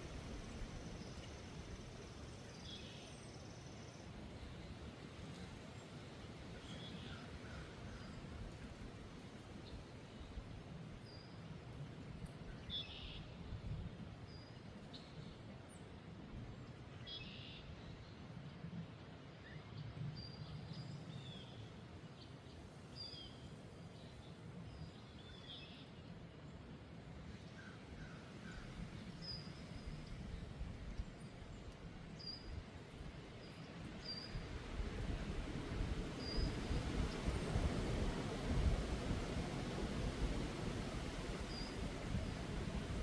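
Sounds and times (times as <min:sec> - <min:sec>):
wind: 0:00.0 - 0:43.0.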